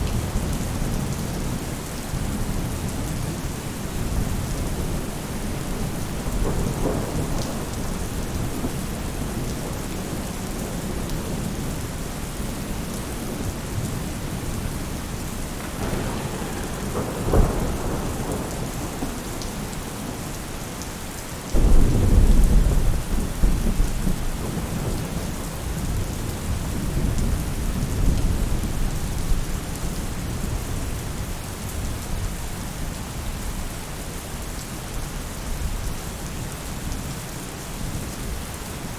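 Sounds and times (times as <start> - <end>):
rain falling on a roof: 0.0 - 38.9
thunder rumbling: 4.0 - 11.8, 15.5 - 20.4, 21.6 - 29.4.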